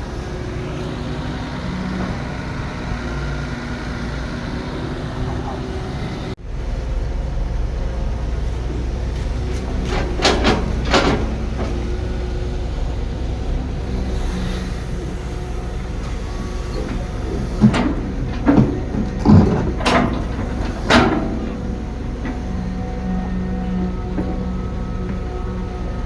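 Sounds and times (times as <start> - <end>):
construction machine engine running: 0.0 - 26.0
loud clunks and bangs: 9.5 - 12.2, 16.6 - 22.7.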